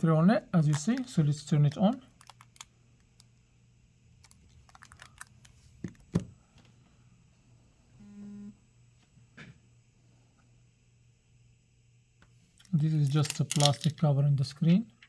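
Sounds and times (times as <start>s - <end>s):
hands handling phone clicks: 2.2s - 3.3s, 13.1s - 13.9s.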